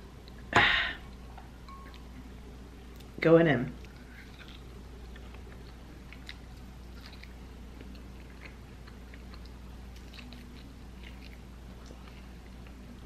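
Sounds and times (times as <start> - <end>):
low hum: 0.0 - 13.0
chewing and biting food: 3.8 - 13.0.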